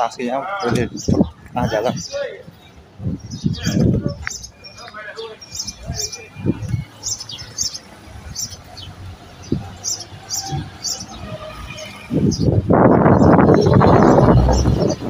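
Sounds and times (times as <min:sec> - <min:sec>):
loud rushing noise: 0:09.4 - 0:15.0.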